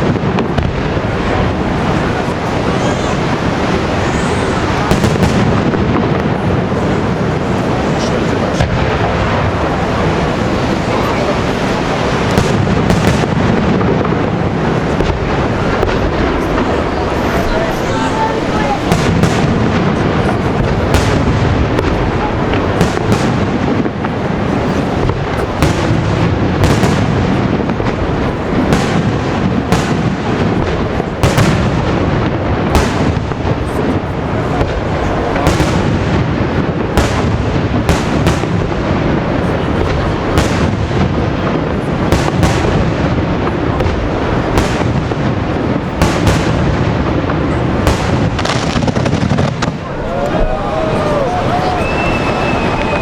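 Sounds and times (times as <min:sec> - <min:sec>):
fireworks bursting with sharp bangs: 0:00.0 - 0:53.0
rumble of overlapping reports: 0:01.0 - 0:13.0, 0:13.7 - 0:23.2.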